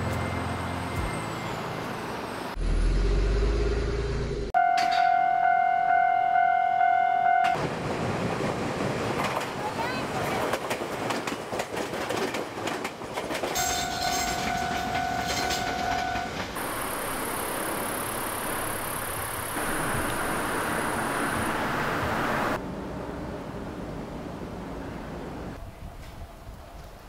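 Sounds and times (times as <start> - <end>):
electric train passing: 0.0 - 3.4, 7.3 - 27.0
wheels clacking over rail joints: 7.6 - 20.0
high-pitched outdoor hiss: 16.6 - 22.6.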